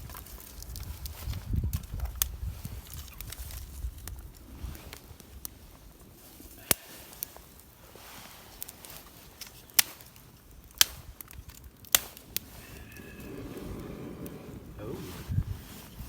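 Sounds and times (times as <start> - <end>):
campfire crackling: 0.0 - 16.0
sharp fire pops: 8.6 - 16.0
faint hiss: 11.9 - 16.0.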